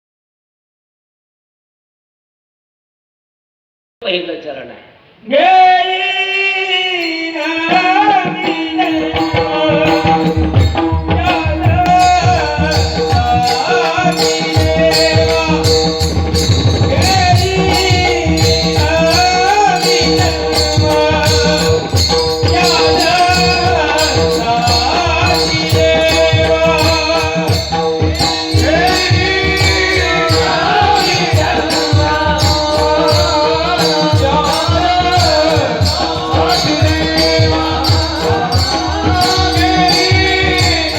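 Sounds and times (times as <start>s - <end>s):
man singing: 5.2s - 40.9s
jingling metal percussion: 6.1s - 40.9s
hand drum playing: 8.6s - 40.9s.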